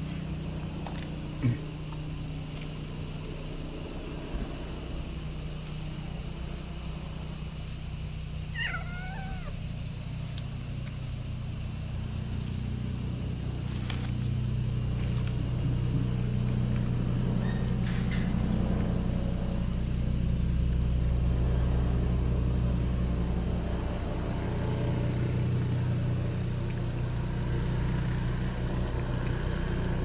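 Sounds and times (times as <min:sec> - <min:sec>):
insect chirring: 0:00.0 - 0:30.0
low traffic hum: 0:00.0 - 0:30.0
cat meowing: 0:08.5 - 0:09.6.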